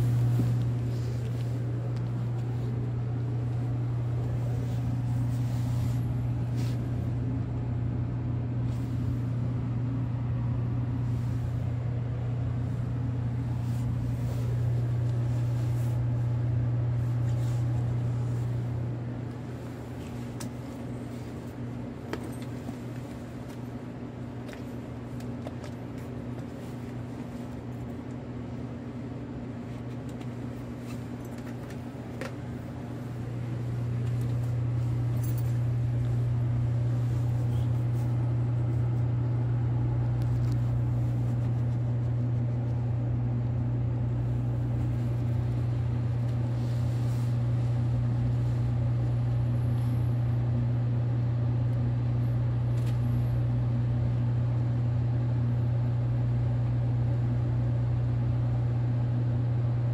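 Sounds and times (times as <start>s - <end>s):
low hum inside train car: 0.0s - 59.9s.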